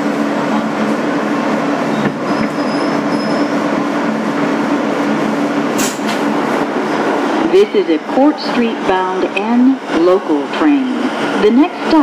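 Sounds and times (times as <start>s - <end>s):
subway car rumble with low tones: 0.0s - 12.0s.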